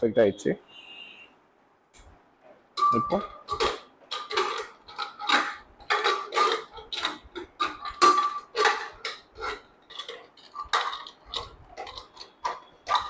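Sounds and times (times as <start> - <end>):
metal lid clanking: 2.8 - 13.0.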